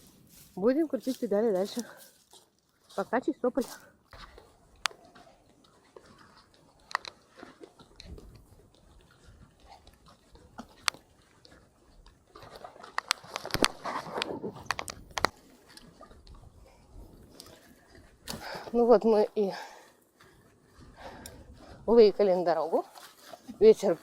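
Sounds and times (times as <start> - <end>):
bicycle tyres crunching twigs: 0.0 - 4.3, 12.3 - 16.2
footsteps on twigs: 0.0 - 16.5, 20.0 - 24.0.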